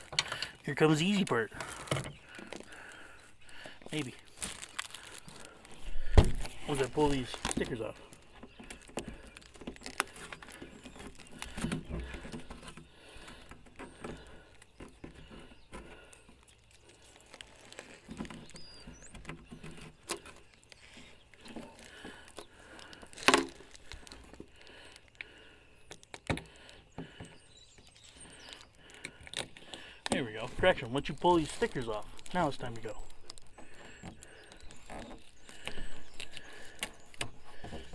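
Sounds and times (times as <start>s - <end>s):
stickers peeling off plastic: 0.0s - 14.4s, 16.0s - 25.3s.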